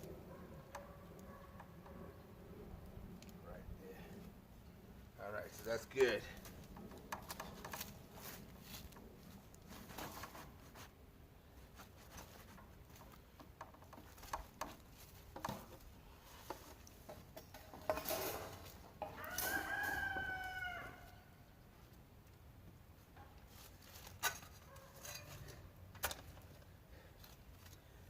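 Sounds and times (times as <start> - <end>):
faint clicks and knocks: 12.2 - 18.1
rooster crowing: 19.0 - 21.4.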